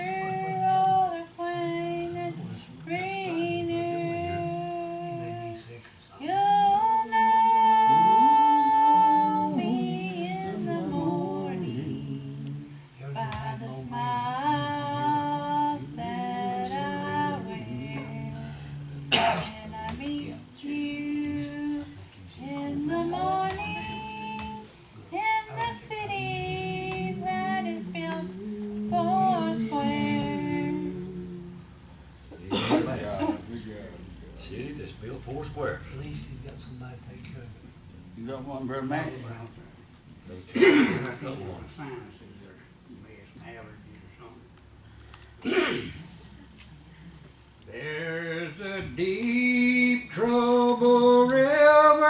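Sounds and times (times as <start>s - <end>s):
hymn being sung: 0.0s - 32.8s
low accompaniment: 7.2s - 39.8s.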